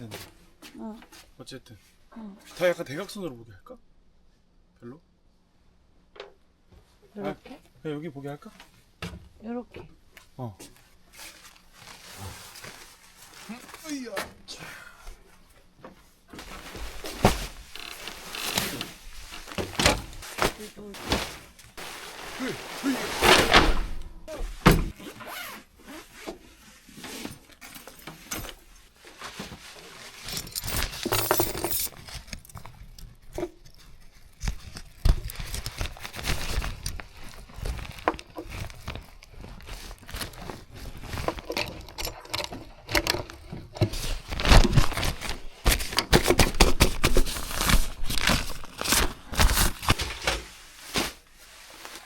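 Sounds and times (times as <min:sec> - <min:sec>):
camping gear knocking and clattering: 0:15.7 - 0:22.4, 0:30.1 - 0:48.7.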